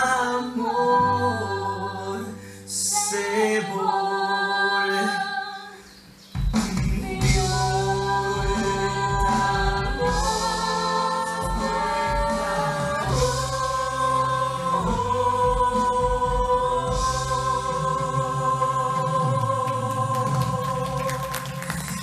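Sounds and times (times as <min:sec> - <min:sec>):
voices singing long notes: 0:00.0 - 0:22.0
backing track with steady beat: 0:06.1 - 0:22.0.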